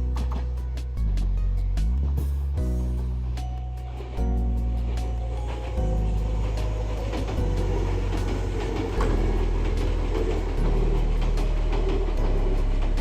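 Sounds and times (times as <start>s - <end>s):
electric train running by: 2.6s - 13.0s.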